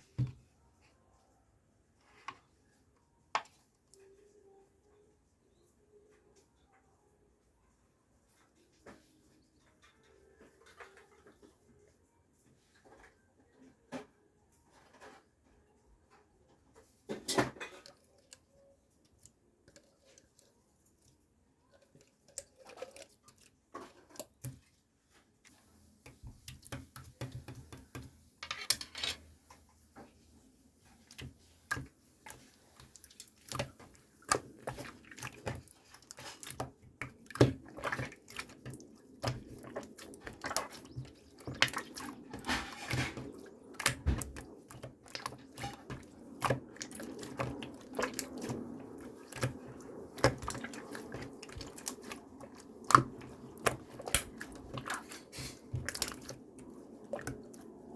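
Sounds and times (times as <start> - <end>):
slime squishing and crackling: 30.9 - 57.9.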